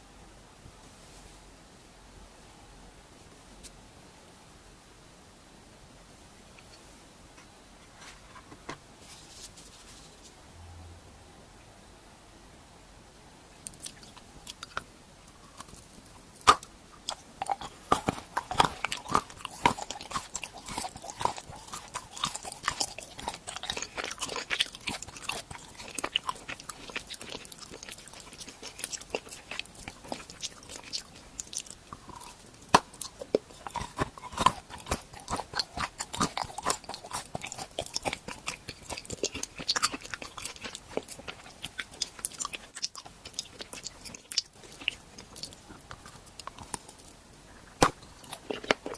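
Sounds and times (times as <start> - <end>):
crunchy chewing: 13.6 - 48.9.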